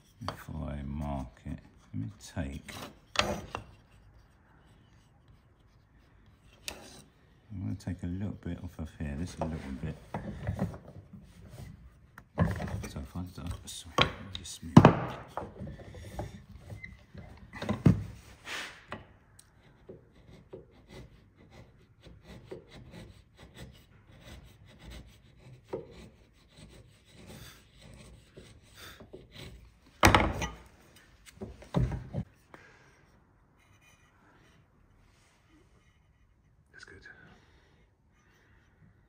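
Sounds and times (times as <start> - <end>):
chisel scraping wood: 0.0 - 34.8
wooden knocks: 13.9 - 16.4, 30.0 - 30.7.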